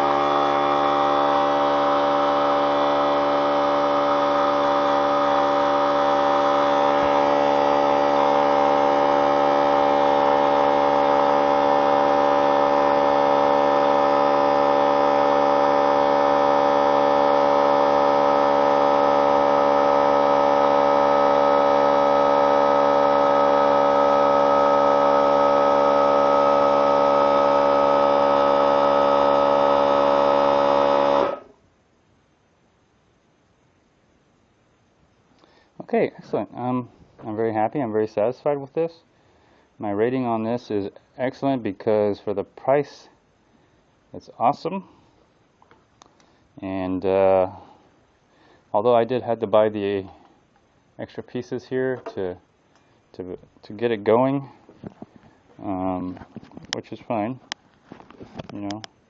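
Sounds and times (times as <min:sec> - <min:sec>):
air compressor running: 0:00.0 - 0:31.7, 0:35.3 - 0:37.3, 0:42.9 - 0:49.2, 0:49.9 - 0:50.8, 0:54.3 - 0:58.8.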